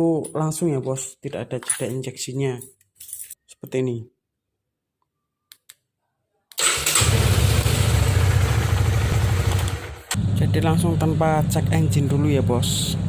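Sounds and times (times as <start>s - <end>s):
motorcycle engine starting and idling: 6.6s - 12.9s.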